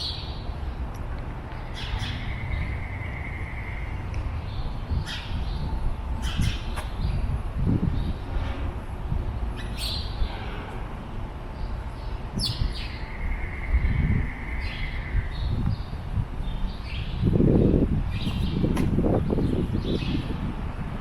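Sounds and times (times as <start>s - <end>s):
constant low rumble: 0.0s - 21.0s
bird chirps: 18.1s - 18.8s.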